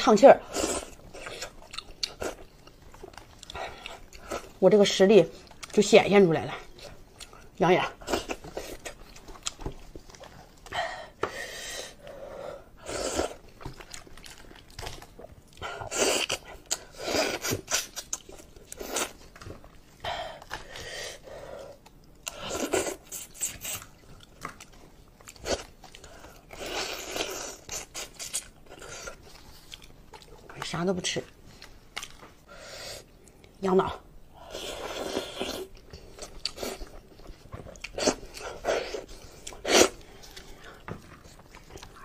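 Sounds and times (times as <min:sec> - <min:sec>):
chewing with wet bites: 0:00.8 - 0:04.5, 0:06.7 - 0:10.7, 0:13.4 - 0:19.4, 0:35.3 - 0:42.0.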